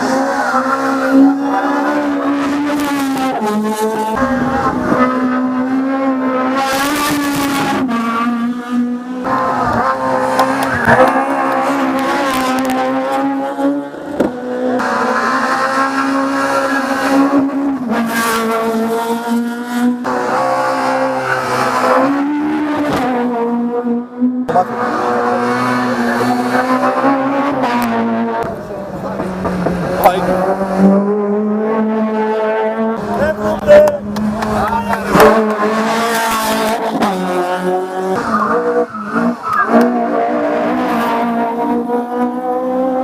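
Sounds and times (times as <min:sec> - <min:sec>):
race car engine at high revs: 0:00.0 - 0:43.0.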